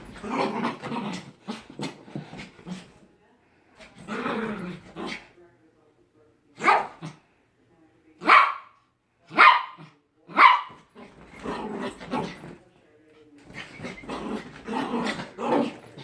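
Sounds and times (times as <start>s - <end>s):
dog growling: 0.0s - 3.0s, 3.9s - 5.3s, 11.0s - 12.6s, 13.5s - 16.0s
dog barking: 6.6s - 7.0s, 8.2s - 9.8s, 10.4s - 10.8s.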